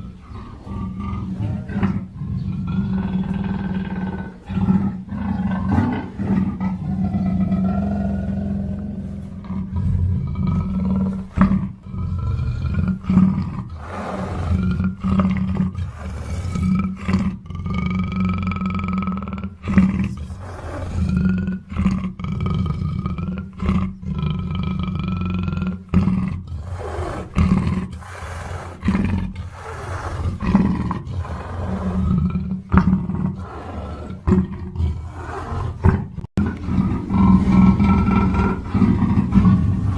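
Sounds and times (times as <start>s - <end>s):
panther growling and roaring: 0.0s - 39.9s.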